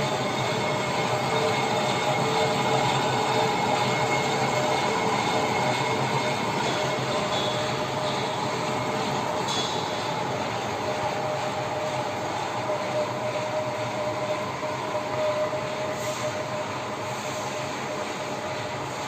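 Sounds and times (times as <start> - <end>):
metal lathe running with whine: 0.0 - 19.0.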